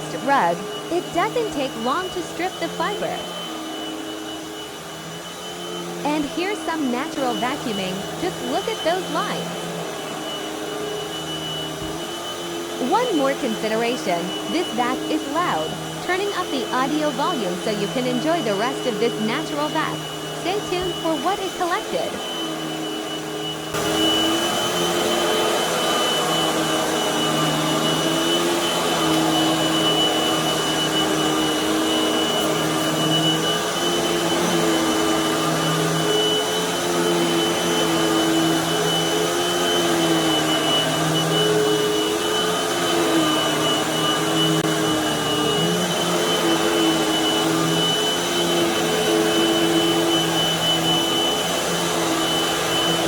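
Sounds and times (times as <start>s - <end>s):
upright vacuum cleaner running: 0.0s - 53.0s.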